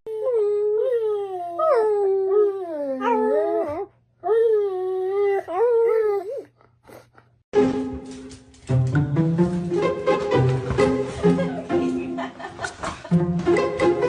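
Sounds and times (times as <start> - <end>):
dog howling: 0.1 - 6.5.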